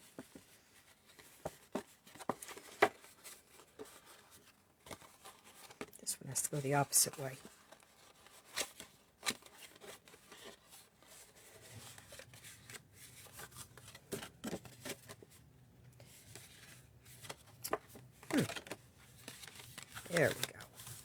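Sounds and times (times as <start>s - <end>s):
paper tapping and rustling: 1.1s - 4.2s, 16.0s - 21.0s.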